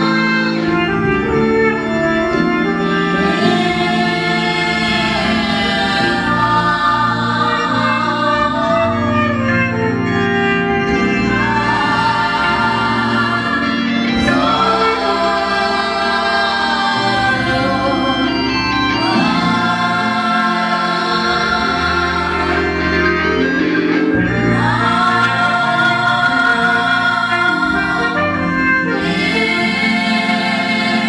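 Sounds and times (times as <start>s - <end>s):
choir singing gospel: 0.0s - 31.0s
electronic organ: 0.0s - 31.0s.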